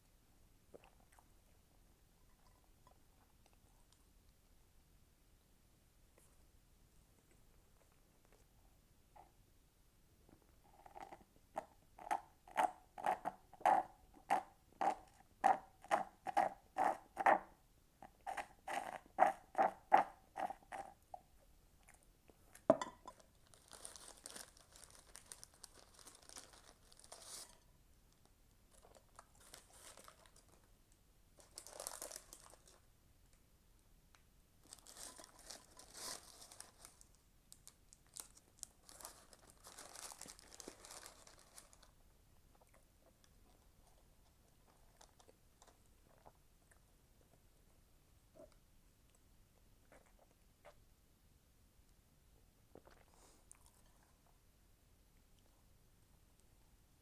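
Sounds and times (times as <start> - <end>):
soft crackly hissing noise: 0.0 - 12.0, 21.4 - 51.0, 51.8 - 57.0
close chewing of food: 42.5 - 47.4, 52.7 - 54.1.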